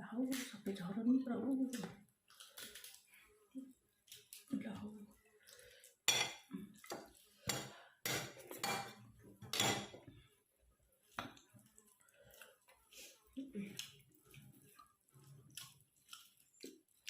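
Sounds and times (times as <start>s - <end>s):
metal utensils clinking on dishes: 6.1s - 6.5s, 7.5s - 10.0s.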